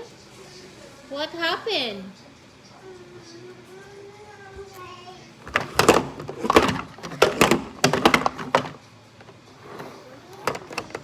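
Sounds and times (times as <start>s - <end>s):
toy trucks knocking together: 5.5s - 8.8s.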